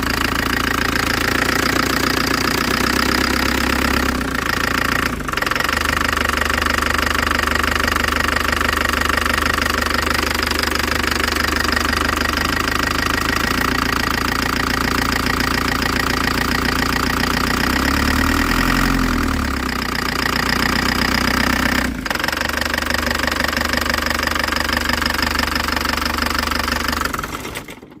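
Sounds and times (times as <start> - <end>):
diesel engine knocking: 0.0 - 28.0.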